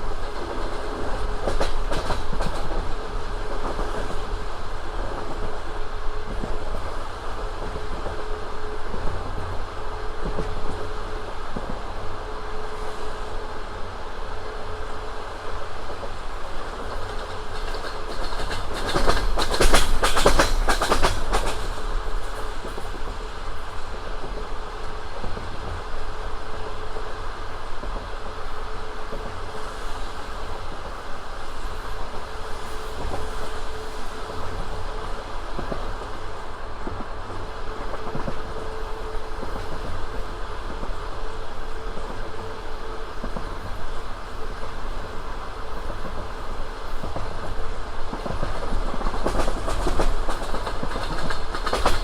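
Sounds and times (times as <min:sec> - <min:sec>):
train wheels rumbling: 0:00.0 - 0:52.0.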